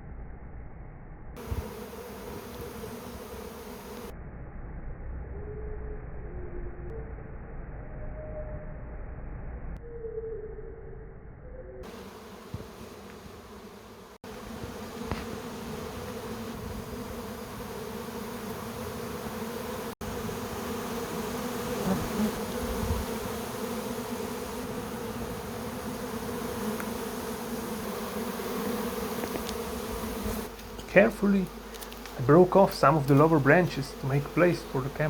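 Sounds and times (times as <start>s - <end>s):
bee swarm buzzing: 1.4s - 4.1s, 11.8s - 35.0s.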